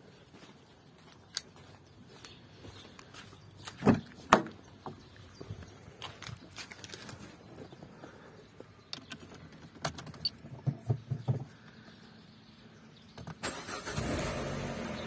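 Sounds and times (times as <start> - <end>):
car engine cranking and idling: 13.3 - 15.0.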